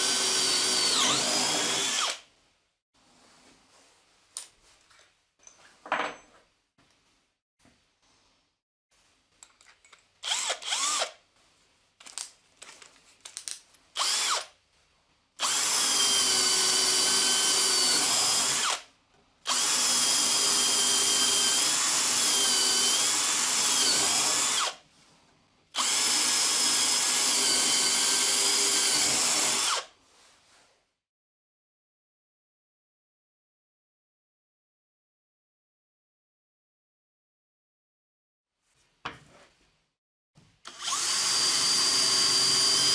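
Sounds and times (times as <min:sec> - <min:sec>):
electric drill whining: 0:00.0 - 0:02.2, 0:10.2 - 0:11.2, 0:14.0 - 0:14.5, 0:15.4 - 0:18.8, 0:19.5 - 0:24.8, 0:25.8 - 0:29.9, 0:40.7 - 0:42.9.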